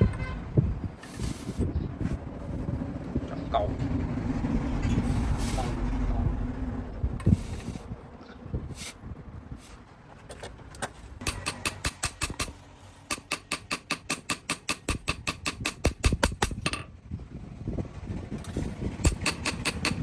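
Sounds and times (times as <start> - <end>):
hammer striking metal on anvil: 11.2 - 16.8, 19.0 - 20.0.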